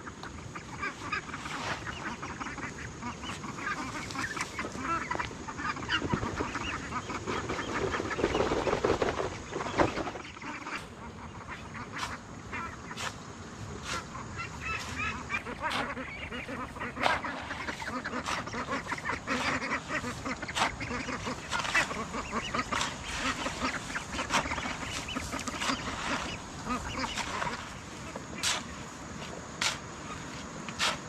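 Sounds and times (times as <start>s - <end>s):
birds calling: 0.0s - 31.0s
sharp knocks or scrapes: 30.7s - 31.0s.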